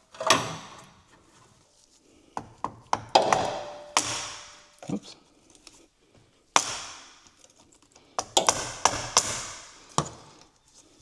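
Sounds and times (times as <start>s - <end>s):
metal tools tapping and knocking: 2.6s - 4.1s.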